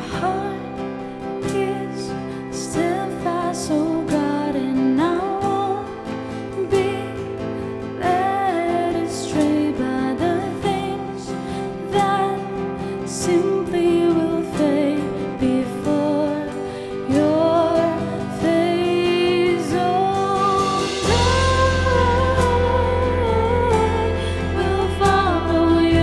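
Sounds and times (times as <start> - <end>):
lead vocalist singing: 0.0 - 26.0
worship band playing: 19.8 - 26.0
deep bass: 20.6 - 26.0.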